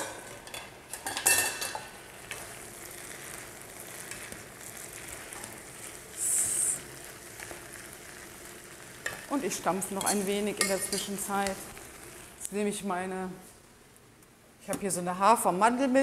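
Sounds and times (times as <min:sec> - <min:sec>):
mushrooms sizzling in a pan: 0:00.0 - 0:13.4
spatulas stirring: 0:08.8 - 0:12.2.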